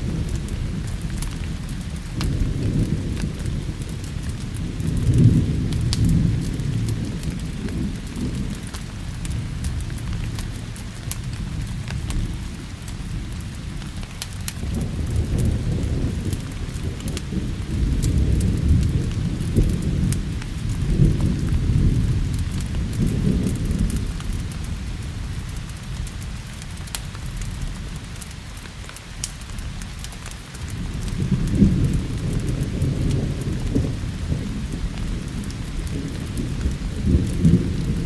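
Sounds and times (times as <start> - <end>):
steady rain: 0.0 - 38.0
wood fire crackling: 0.0 - 38.0
thunder rolling: 14.5 - 24.6, 30.7 - 38.0.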